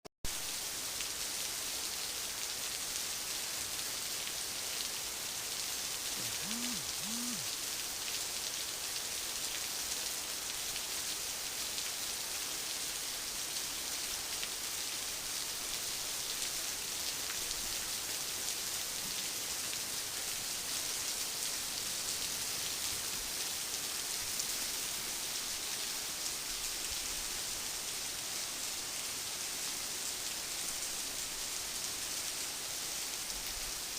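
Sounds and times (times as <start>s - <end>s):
rain falling: 0.3s - 33.9s
short low tones: 6.2s - 7.5s.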